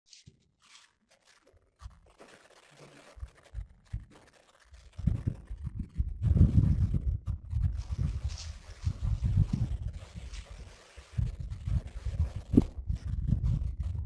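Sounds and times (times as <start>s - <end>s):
scratching and crunching: 0.1s - 14.0s
low rumbling thumps: 5.0s - 10.4s, 11.2s - 14.0s.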